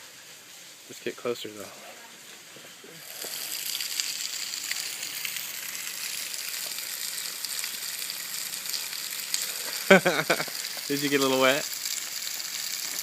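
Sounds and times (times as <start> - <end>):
water trickling onto rock: 2.2 - 13.0
small drip ticks: 3.1 - 13.0.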